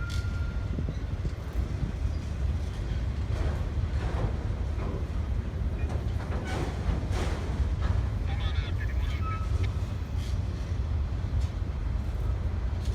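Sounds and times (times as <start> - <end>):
train wheels clanking: 0.0 - 8.3
freight train rumbling: 0.0 - 12.9.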